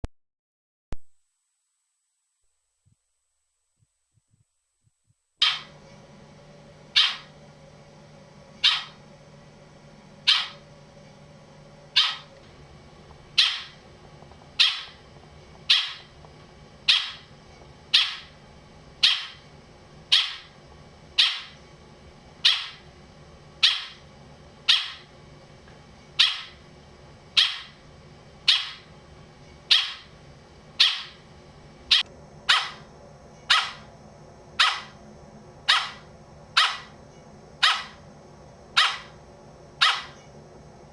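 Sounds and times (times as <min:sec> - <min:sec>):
animal bark-like calls: 0:05.4 - 0:05.7, 0:06.9 - 0:07.3, 0:08.6 - 0:09.0, 0:10.2 - 0:10.6, 0:11.9 - 0:12.3, 0:13.4 - 0:13.8, 0:14.6 - 0:15.0, 0:15.7 - 0:16.1, 0:16.9 - 0:17.3, 0:17.9 - 0:18.3, 0:19.0 - 0:19.4, 0:20.1 - 0:20.5, 0:21.2 - 0:21.6, 0:22.4 - 0:22.8, 0:23.6 - 0:24.0, 0:24.7 - 0:25.1, 0:26.2 - 0:26.6, 0:27.4 - 0:27.8, 0:28.5 - 0:28.8, 0:29.7 - 0:30.1, 0:30.8 - 0:31.2, 0:31.9 - 0:32.9, 0:33.5 - 0:33.9, 0:34.6 - 0:35.0, 0:35.6 - 0:37.0, 0:37.6 - 0:38.0, 0:38.8 - 0:39.2, 0:39.8 - 0:40.2.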